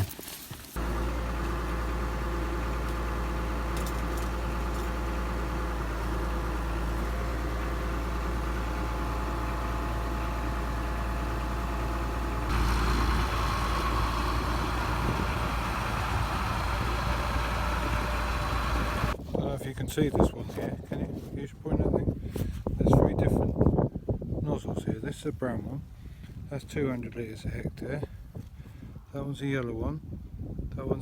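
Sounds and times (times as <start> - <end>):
farm machine engine idling: 0.8 - 19.2.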